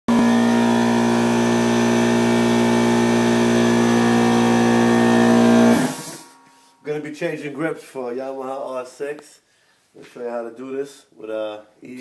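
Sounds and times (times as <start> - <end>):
machine motor humming: 0.1 - 6.2.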